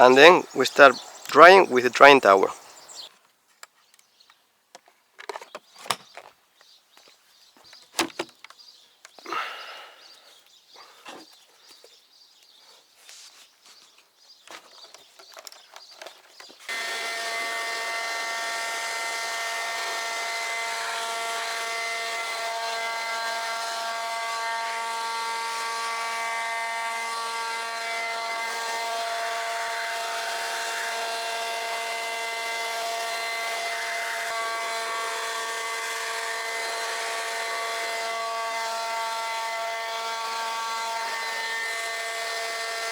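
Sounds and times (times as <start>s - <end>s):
leaf blower running: 0.0s - 2.7s, 16.7s - 42.9s
clicks and handling sounds: 3.5s - 6.4s, 14.4s - 16.7s.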